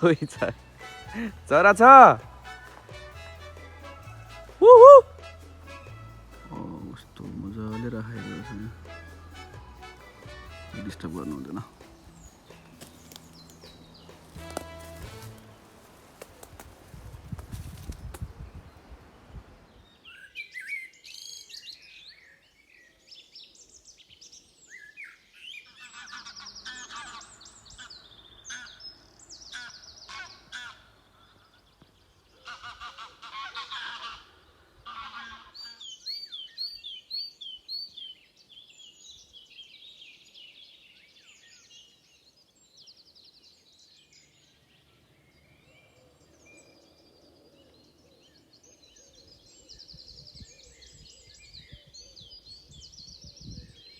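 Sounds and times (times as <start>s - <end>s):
songbirds singing: 0.0s - 5.0s, 5.6s - 53.9s.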